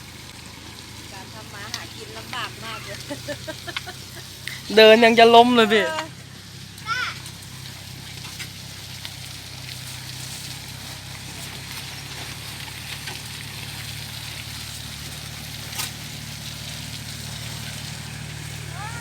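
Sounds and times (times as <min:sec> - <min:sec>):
vehicle engine humming: 0:00.0 - 0:19.0
wet sloshing: 0:00.0 - 0:19.0.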